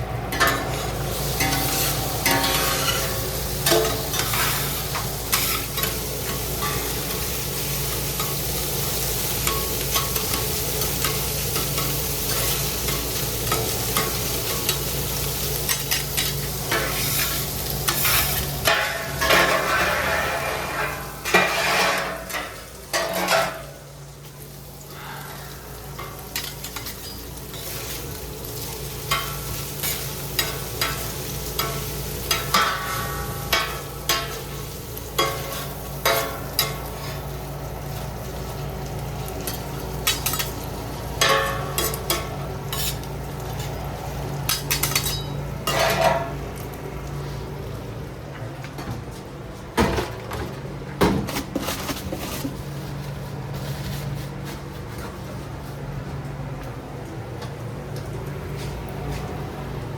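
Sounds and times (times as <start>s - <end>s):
food frying on a griddle: 0.0s - 48.6s, 50.2s - 59.9s
utensils clattering and scraping: 0.3s - 7.2s, 15.6s - 23.7s, 41.2s - 43.1s, 44.4s - 46.4s, 51.2s - 55.2s.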